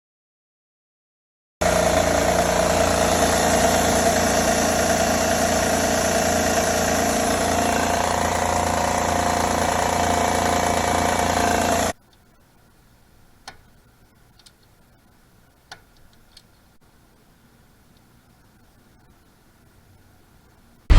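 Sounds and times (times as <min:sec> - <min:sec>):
engine running with tapping: 0:01.6 - 0:12.0.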